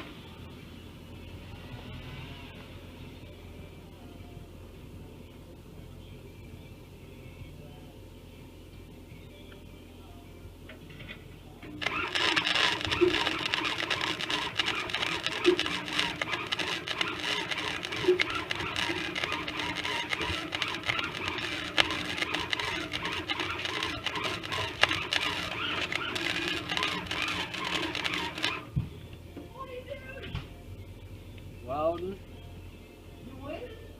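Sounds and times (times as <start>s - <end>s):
welder arc crackling: 11.8s - 28.8s.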